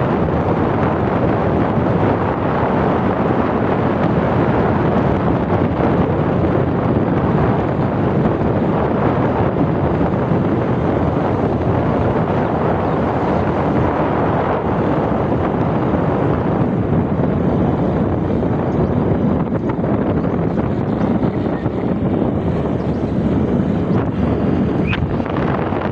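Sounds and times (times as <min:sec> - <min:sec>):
motorcycle riding noise: 0:00.0 - 0:25.9
wind rush on microphone: 0:00.0 - 0:25.9.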